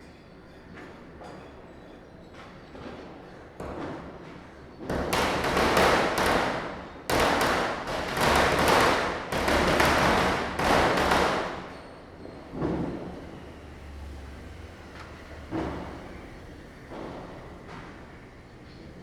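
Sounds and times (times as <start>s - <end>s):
firecrackers cracking: 5.2s - 11.7s.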